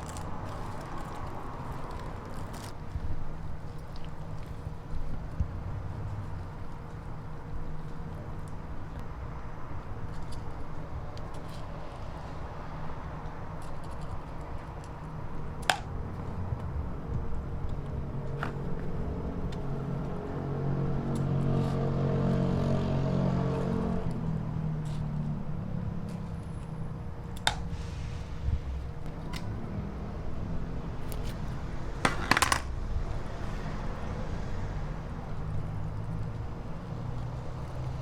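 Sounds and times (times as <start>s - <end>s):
low engine-like hum: 0.0s - 38.0s
steady rumble: 14.0s - 21.8s, 23.6s - 38.0s.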